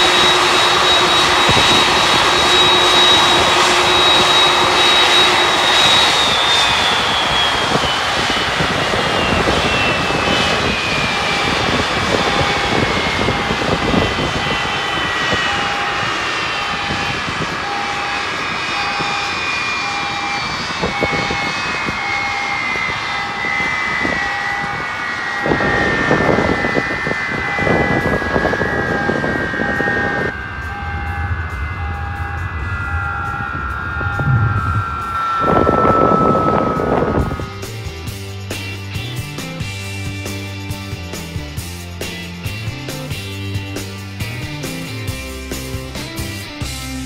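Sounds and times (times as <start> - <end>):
jet engine winding down: 0.0 - 47.0
steady roar: 24.2 - 37.7
short beeps: 27.4 - 37.7.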